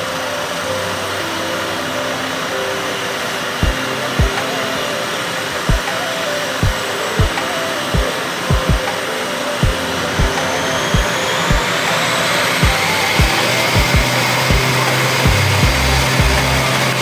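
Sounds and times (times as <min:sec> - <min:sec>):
turboprop engines running: 0:09.6 - 0:17.0.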